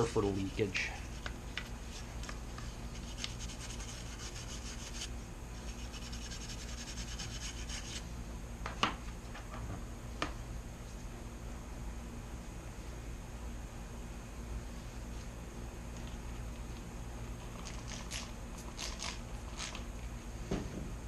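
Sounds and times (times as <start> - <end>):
dry brush scrubbing: 0.0 - 8.0
steady low hum: 0.0 - 21.0.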